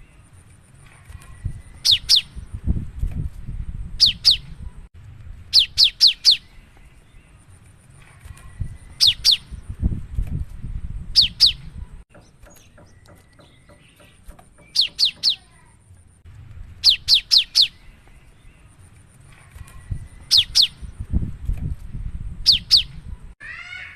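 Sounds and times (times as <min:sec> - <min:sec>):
bird whistling sharp notes: 0:11.2 - 0:11.7.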